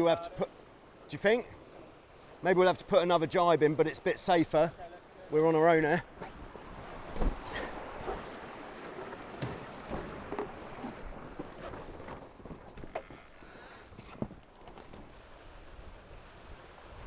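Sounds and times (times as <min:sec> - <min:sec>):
water rushing along hulls: 0:00.0 - 0:17.0
short splashes or knocks: 0:06.2 - 0:15.2.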